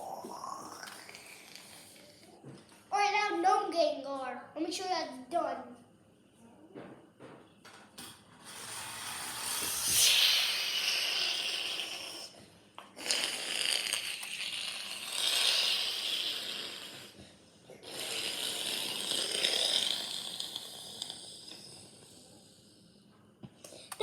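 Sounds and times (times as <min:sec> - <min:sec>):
child imitating jet engine: 0:09.6 - 0:12.3.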